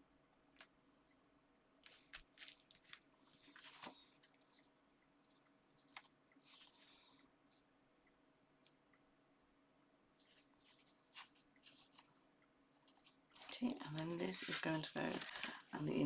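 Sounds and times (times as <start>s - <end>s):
faint steady hum: 0.0s - 16.0s
paper and card rustling: 1.8s - 4.7s, 5.8s - 7.6s, 10.2s - 16.0s.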